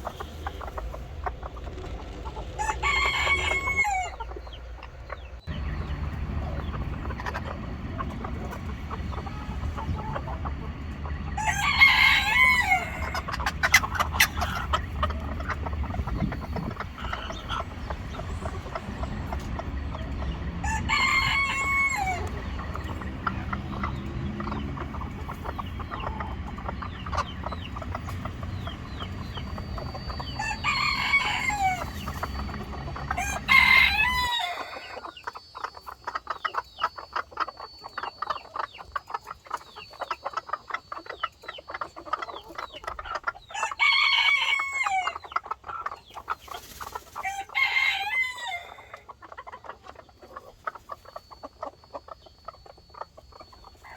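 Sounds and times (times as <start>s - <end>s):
low rumble: 0.0s - 34.3s
birds chirping: 0.0s - 53.9s
chickens clucking: 0.0s - 53.9s
rooster crowing: 2.5s - 4.4s, 11.3s - 13.8s, 20.6s - 24.6s, 29.8s - 35.0s, 43.5s - 45.2s, 47.2s - 49.0s.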